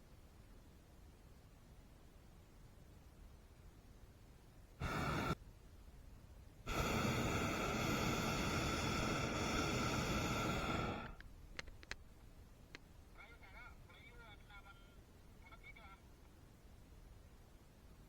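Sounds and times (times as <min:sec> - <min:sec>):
propane burner blasts: 0:04.8 - 0:05.4, 0:06.6 - 0:11.2.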